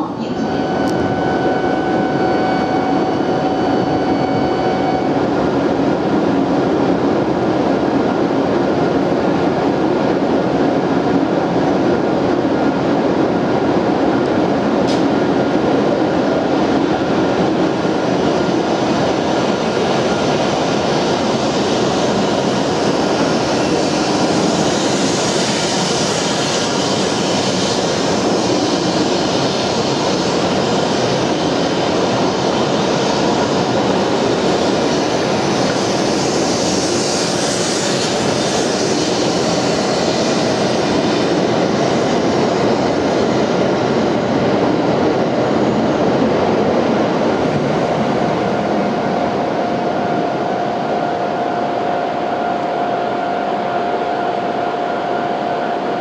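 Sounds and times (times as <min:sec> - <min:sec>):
train equipment hum and hiss: 0:00.0 - 0:56.0.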